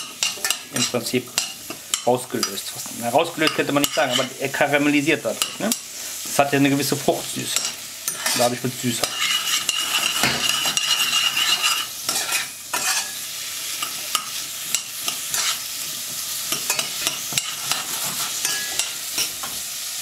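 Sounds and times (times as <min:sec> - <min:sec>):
carrots sizzling in a pan: 0:00.0 - 0:20.0
metal spoon clicking and scraping: 0:00.1 - 0:02.6, 0:09.0 - 0:13.2, 0:16.5 - 0:19.4.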